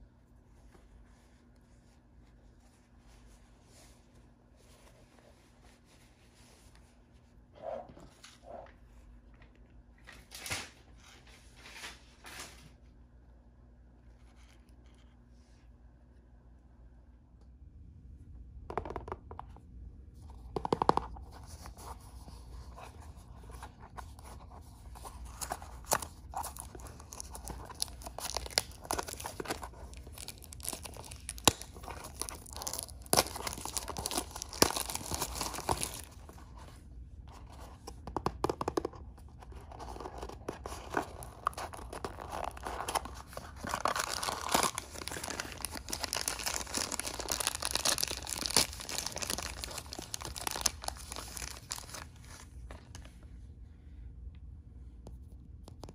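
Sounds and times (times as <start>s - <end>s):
wrapper crinkling and tearing: 25.0s - 36.3s, 39.7s - 53.0s.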